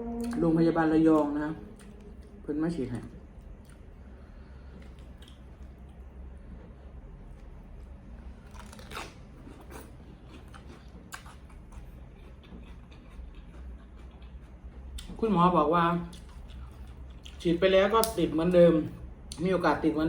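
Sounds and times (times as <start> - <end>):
steady low hum: 0.0 - 20.0
chewing with small clicks: 3.6 - 3.9, 4.7 - 6.1, 8.5 - 15.2, 16.0 - 18.2.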